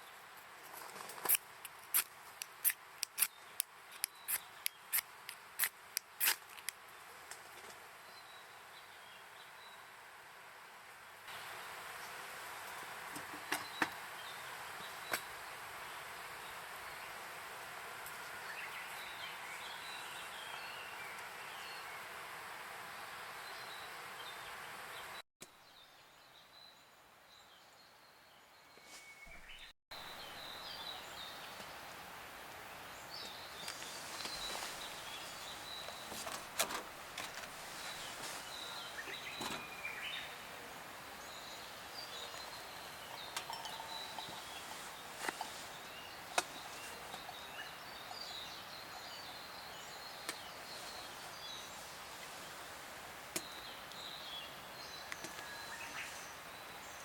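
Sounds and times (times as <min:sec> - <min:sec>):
sharp clicks: 0:01.2 - 0:06.8
steady hiss: 0:30.0 - 0:57.0
birds chirping: 0:32.9 - 0:40.6, 0:41.2 - 0:52.7.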